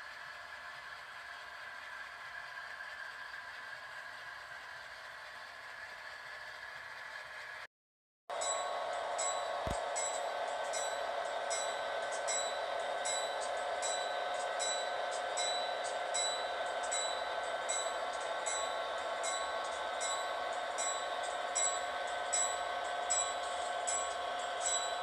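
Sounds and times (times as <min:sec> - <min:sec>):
railway warning bell ringing: 0:08.3 - 0:25.0.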